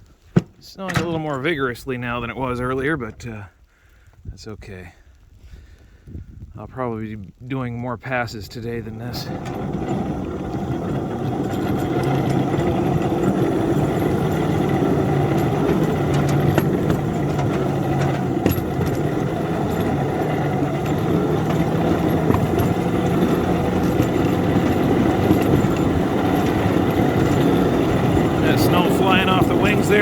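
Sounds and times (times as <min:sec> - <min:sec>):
small locomotive engine running: 0:09.0 - 0:30.0.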